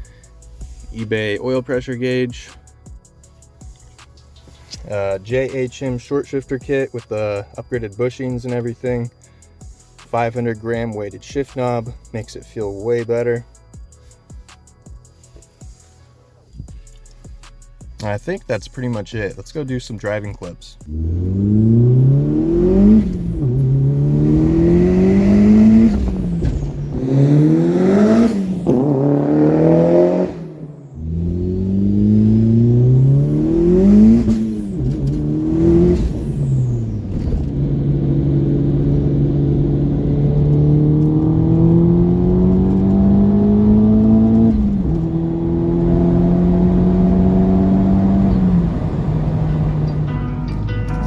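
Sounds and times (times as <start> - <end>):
turbocharged car engine accelerating: 20.0 - 51.0.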